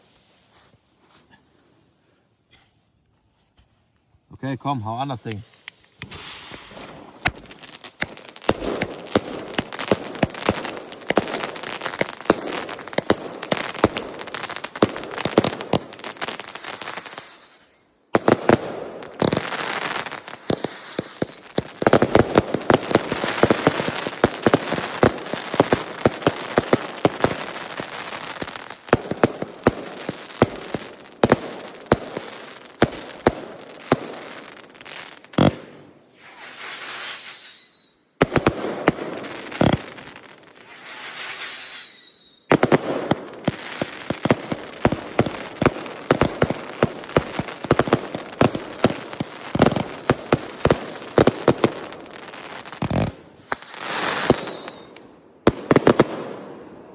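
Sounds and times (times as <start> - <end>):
firework crackling and popping: 4.6 - 56.5
firework hissing spray: 5.2 - 8.8, 36.0 - 37.8, 40.4 - 42.0
firework bang: 6.0 - 10.5.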